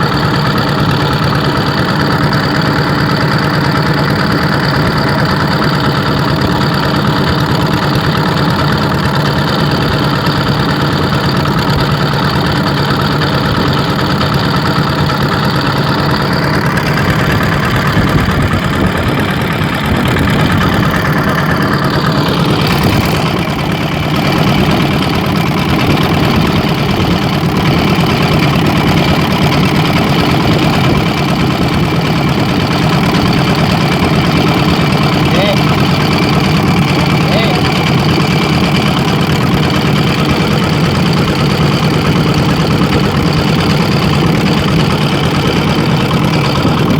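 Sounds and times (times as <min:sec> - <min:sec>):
ship engine humming: 0:00.0 - 0:46.9.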